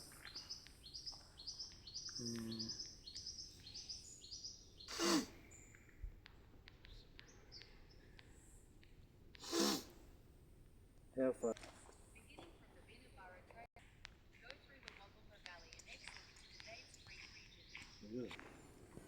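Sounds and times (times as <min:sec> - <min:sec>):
birds chirping: 0:00.0 - 0:19.0
loud breathy bursts: 0:04.9 - 0:05.7, 0:09.4 - 0:10.1.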